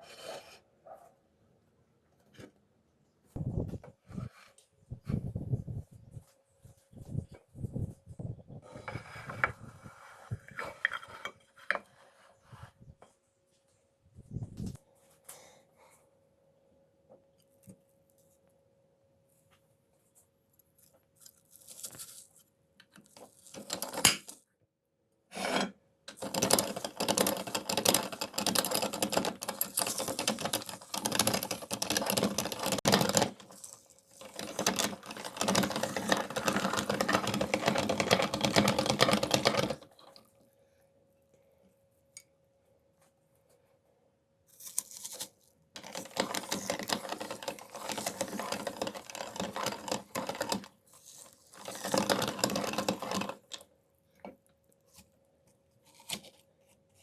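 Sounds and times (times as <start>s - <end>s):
meat grinder grinding: 26.2s - 40.0s, 45.8s - 50.7s, 51.3s - 53.6s.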